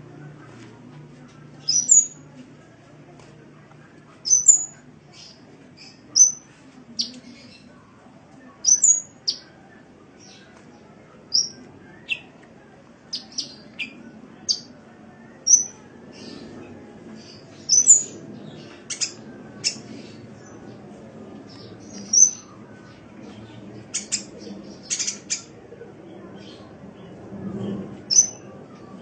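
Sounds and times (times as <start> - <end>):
faint low hum: 0.0 - 29.0
bird chirping: 1.6 - 2.2, 4.2 - 6.4, 8.6 - 9.5, 11.3 - 12.3, 17.3 - 20.6.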